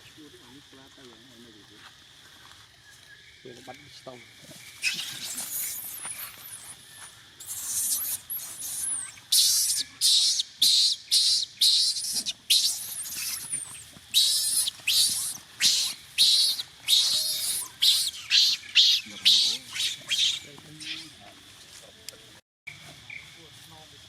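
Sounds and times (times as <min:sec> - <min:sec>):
high-pitched insect buzzing: 0:04.2 - 0:21.3
faint thin squeaks: 0:04.5 - 0:09.2.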